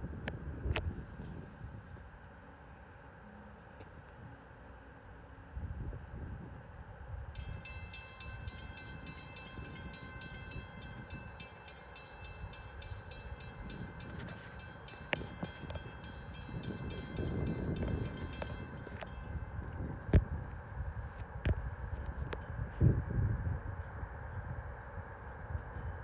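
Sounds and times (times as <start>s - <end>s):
steady high whine: 0.0s - 26.0s
train wheels rumbling on rail: 7.4s - 26.0s.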